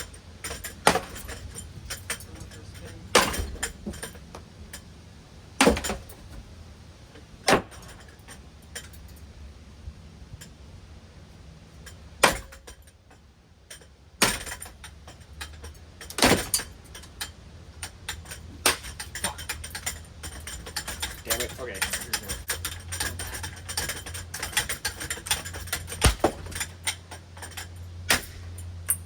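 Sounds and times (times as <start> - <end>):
loud clattering bangs: 0.0 - 4.4, 5.6 - 6.5, 18.2 - 28.6
ceiling fan humming: 0.0 - 29.0.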